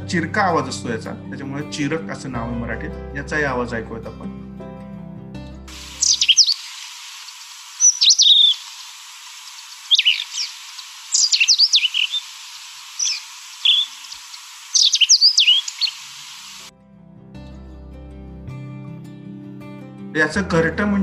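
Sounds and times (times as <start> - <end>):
faint steady hiss: 5.7 - 16.7
bird calling high sharp notes: 5.8 - 16.7.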